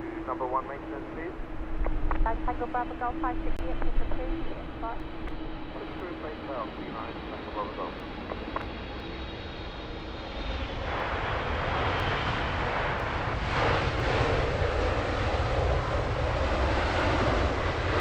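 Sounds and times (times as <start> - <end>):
jet airliner engine roar: 0.0 - 18.0.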